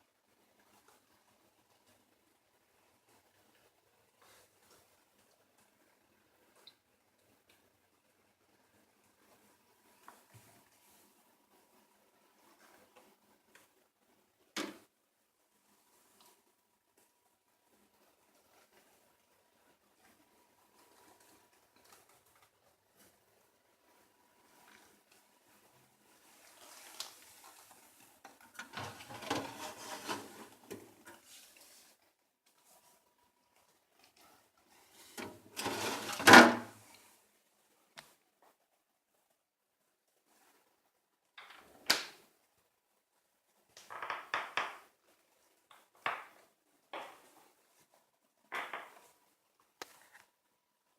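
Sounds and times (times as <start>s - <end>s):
plastic fittings clattering and rattling: 28.3s - 30.8s.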